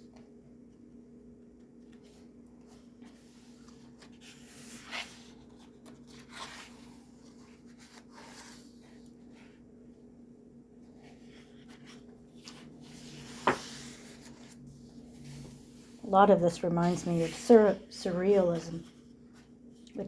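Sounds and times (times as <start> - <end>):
faint steady hum: 0.0 - 20.0
paper pages turning: 1.7 - 9.6, 10.9 - 19.6.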